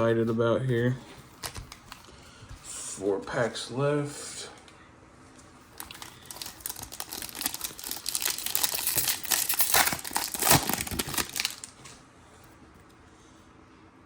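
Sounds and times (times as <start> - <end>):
wrapper crinkling and tearing: 5.8 - 12.0.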